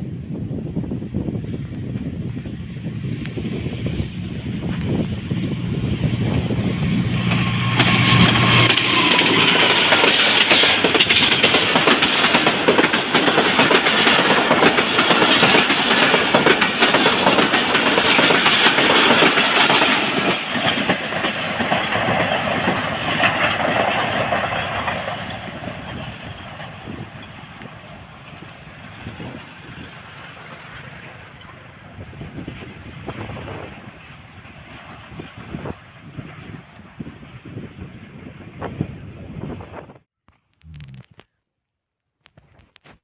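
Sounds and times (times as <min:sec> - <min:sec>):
diesel locomotive engine: 0:00.0 - 0:40.0
train wheels clattering over rail joints: 0:07.2 - 0:34.6.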